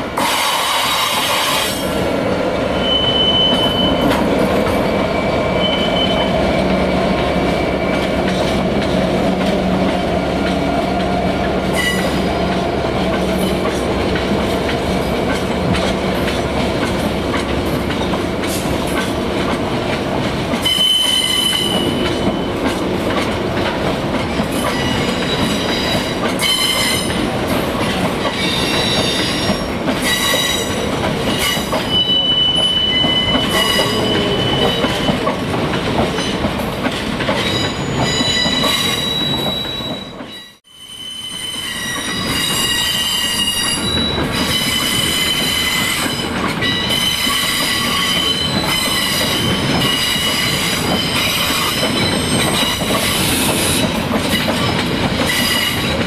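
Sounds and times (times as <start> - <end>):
train wheels rumbling on rail: 0.0 - 56.0
high-pitched wheel squeal: 2.8 - 4.2, 4.8 - 8.0, 20.6 - 22.1, 31.4 - 35.2, 37.6 - 53.8.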